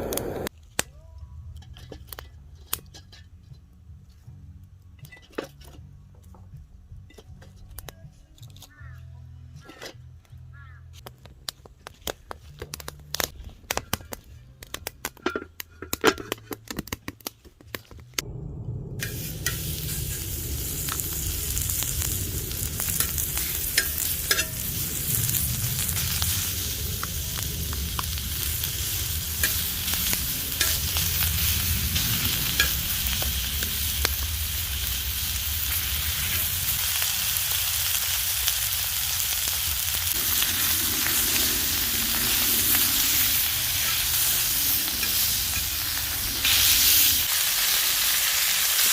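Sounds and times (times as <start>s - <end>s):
meat sizzling on a griddle: 19.0s - 48.9s.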